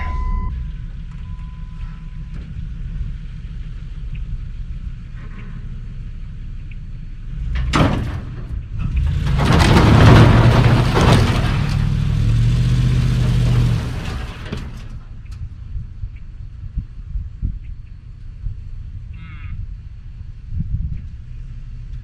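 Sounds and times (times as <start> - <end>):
wind buffeting microphone: 15.1 - 22.0.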